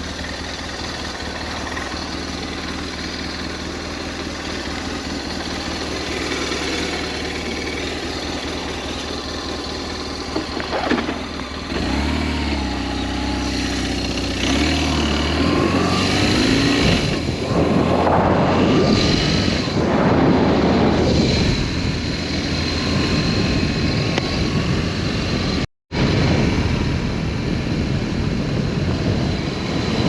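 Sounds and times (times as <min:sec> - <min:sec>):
motorcycle engine revving: 0:00.0 - 0:30.0
steady rushing noise: 0:15.6 - 0:30.0.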